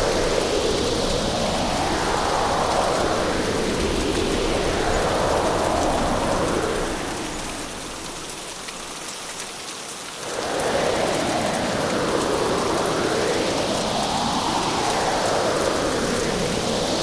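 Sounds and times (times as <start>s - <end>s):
wind gusts: 0.0s - 9.0s, 10.2s - 17.0s
rain: 0.0s - 17.0s.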